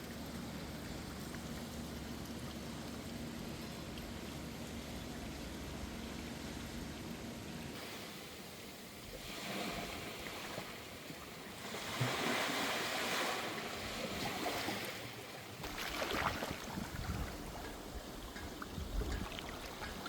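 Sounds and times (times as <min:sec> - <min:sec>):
sea waves washing in: 0:07.8 - 0:20.0.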